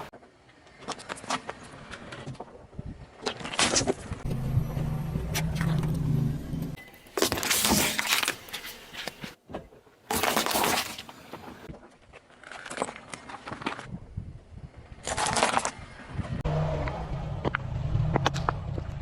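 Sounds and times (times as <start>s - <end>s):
objects crunching under car tyres: 3.2s - 9.4s, 15.0s - 19.0s
car engine running: 4.2s - 6.8s.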